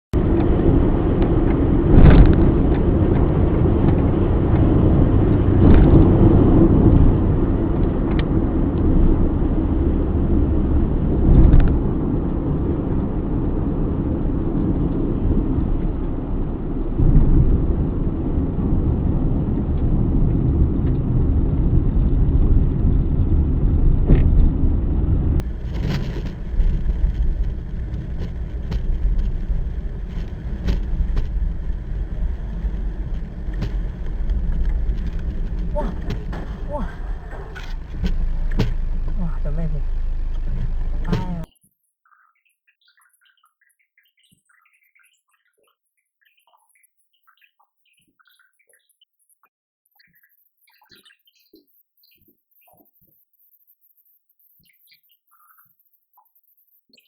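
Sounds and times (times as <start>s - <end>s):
bus engine low rumble: 20.0s - 41.5s
loud thumps: 25.4s - 41.5s.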